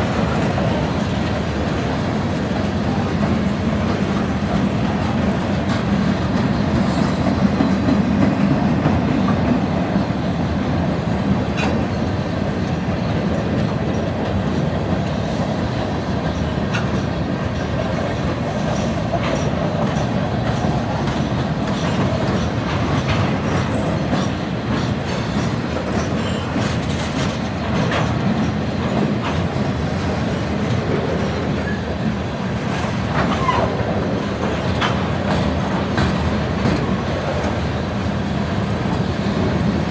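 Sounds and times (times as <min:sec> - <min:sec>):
freight train rumbling: 0:00.0 - 0:39.9
wheels clicking over rail joints: 0:11.3 - 0:39.9.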